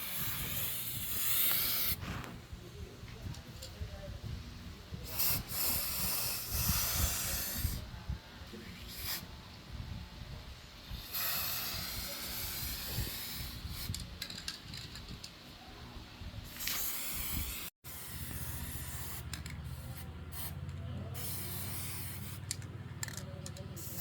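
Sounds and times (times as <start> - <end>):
spraying hiss: 0.0 - 2.3, 5.0 - 7.8, 10.8 - 13.9.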